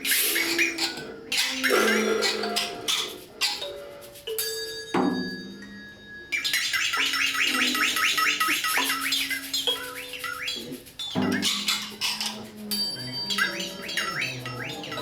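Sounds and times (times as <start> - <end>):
high bird-like chirps and squawks: 0.0 - 3.8, 6.4 - 15.0.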